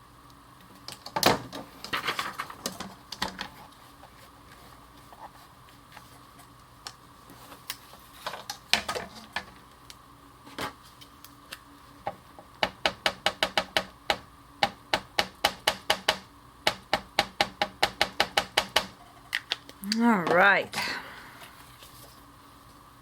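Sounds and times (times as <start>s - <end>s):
tools tapping on desk: 12.6s - 19.0s.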